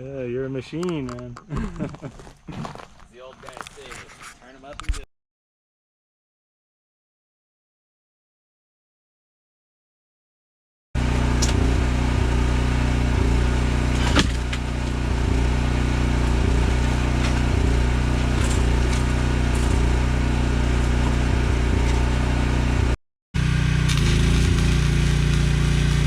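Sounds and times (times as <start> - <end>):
engine running steadily: 11.0 - 26.0
sharp click: 11.4 - 11.7.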